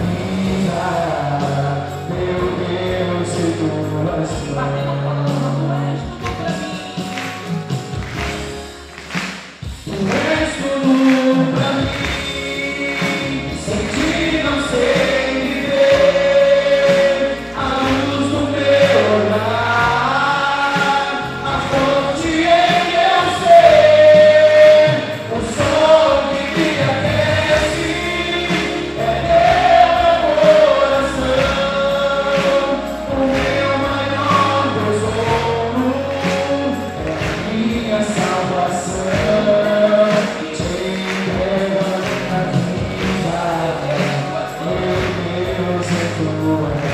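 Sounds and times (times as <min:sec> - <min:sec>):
instrumental backing: 0:00.0 - 0:46.9
choir singing: 0:10.0 - 0:46.9.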